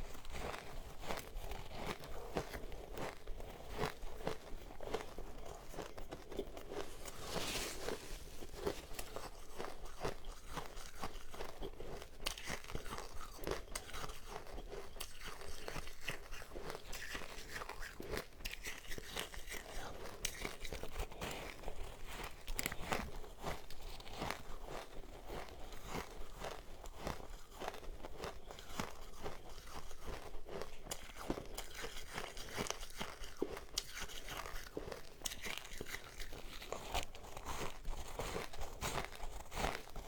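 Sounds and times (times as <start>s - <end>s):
chewing crunchy ice: 0.0s - 40.0s.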